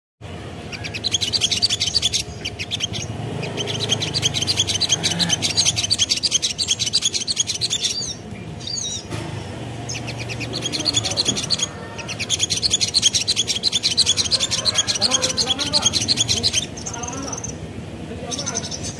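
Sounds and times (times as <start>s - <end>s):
bird chirping: 0.2s - 18.9s.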